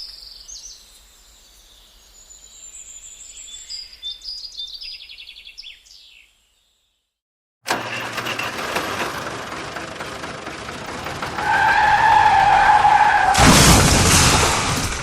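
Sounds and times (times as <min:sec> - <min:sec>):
tyre squeal: 0:11.1 - 0:13.4
loud crash: 0:12.2 - 0:15.0.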